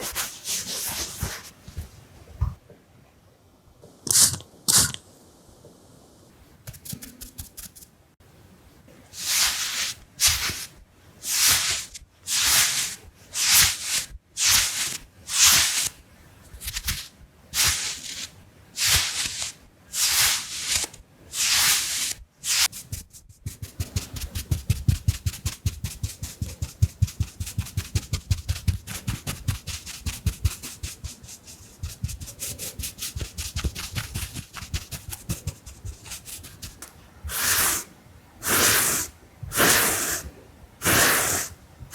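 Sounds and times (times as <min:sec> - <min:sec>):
makeup brush swipes: 0:06.7 - 0:07.8, 0:09.2 - 0:15.9, 0:16.6 - 0:37.8.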